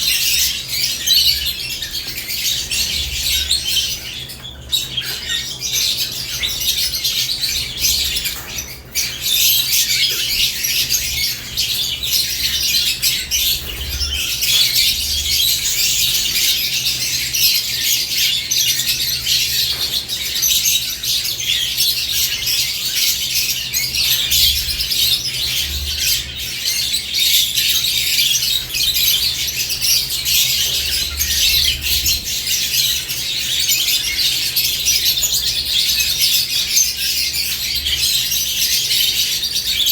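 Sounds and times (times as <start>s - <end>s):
lovebirds chirping and squawking: 0.0s - 39.9s.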